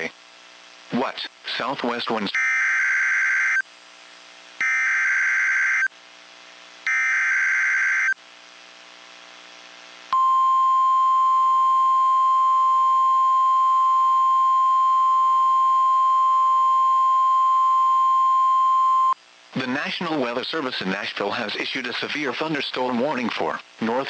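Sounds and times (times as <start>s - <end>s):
steady warning alarm tone: 4.6s - 5.9s, 6.9s - 8.2s.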